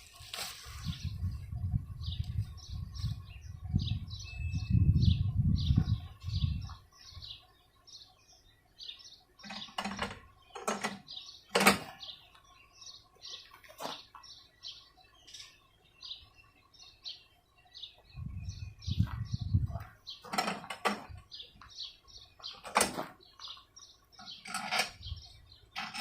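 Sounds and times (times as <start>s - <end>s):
bird chirping: 0.0s - 26.0s
sharp knocks of mower parts: 9.5s - 12.0s, 20.3s - 21.2s, 22.6s - 23.2s.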